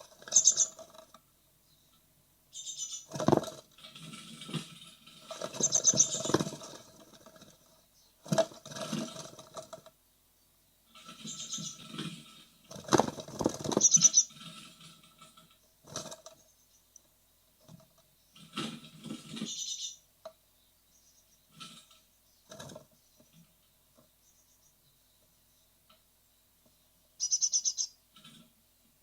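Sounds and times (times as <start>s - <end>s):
nestlings scrabbling and fluttering: 0.0s - 1.3s, 2.5s - 10.0s, 10.8s - 20.0s, 21.5s - 24.1s, 27.2s - 28.6s
short high-pitched chick calls: 27.2s - 28.0s.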